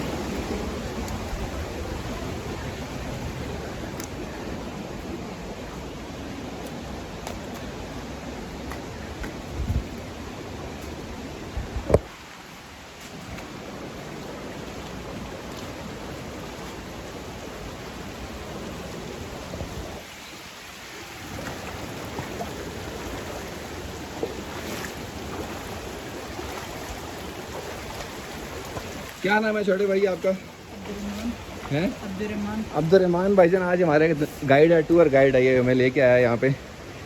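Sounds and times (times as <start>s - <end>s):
stream flowing over rocks: 0.0s - 37.0s.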